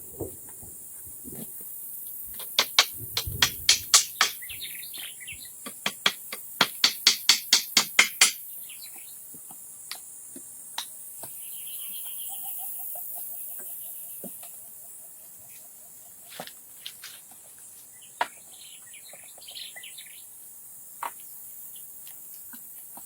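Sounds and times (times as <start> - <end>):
insects buzzing: 0.0 - 23.0
sharp knocks on wood: 2.4 - 4.5, 5.6 - 8.4.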